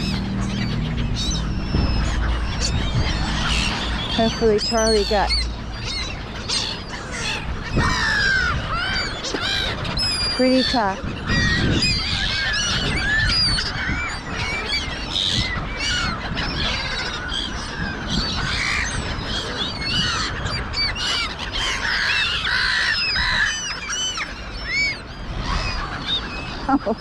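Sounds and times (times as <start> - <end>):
low rumble: 0.0 - 13.8
gulls calling: 0.0 - 27.0.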